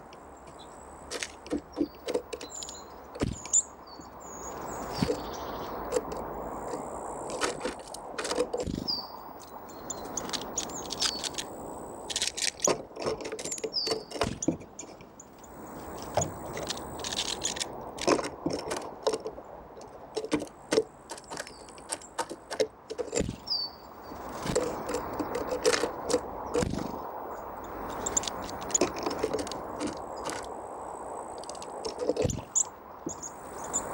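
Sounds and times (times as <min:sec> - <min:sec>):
birds pecking seeds: 0:00.0 - 0:33.9.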